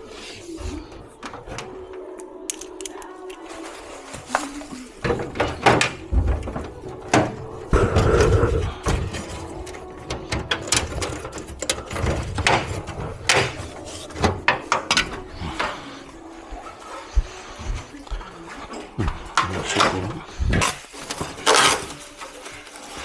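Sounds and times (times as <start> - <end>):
clicks and knocks of parts handled: 2.5 - 6.3
scraping rustle: 3.2 - 7.0, 20.6 - 23.0.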